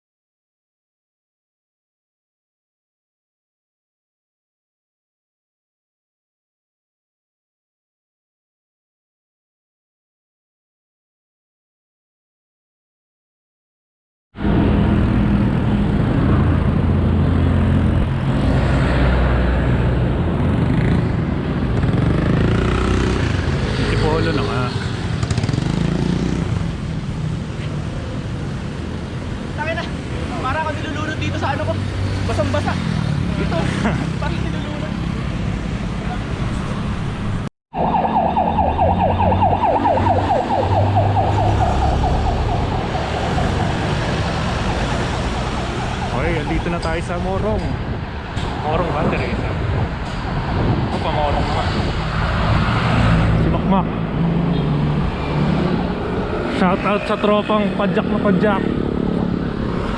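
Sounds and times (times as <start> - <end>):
road traffic engine hum: 14.4 - 59.9
electronic siren yelping: 37.7 - 46.7
wind rumble on microphone: 46.2 - 53.6.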